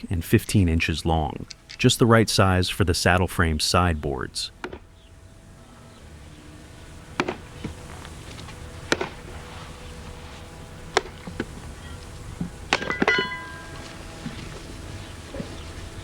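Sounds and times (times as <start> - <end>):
wooden mallet striking axe: 4.6 - 4.9, 7.2 - 7.4, 8.9 - 9.2, 10.9 - 11.5, 12.4 - 13.8.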